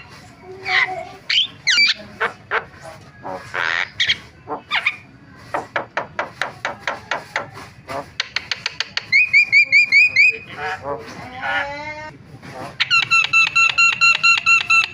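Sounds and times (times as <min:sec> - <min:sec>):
bird harsh rasp: 0:00.0 - 0:11.7, 0:12.5 - 0:14.9
bird clicking chatter: 0:08.1 - 0:10.4, 0:12.8 - 0:14.9.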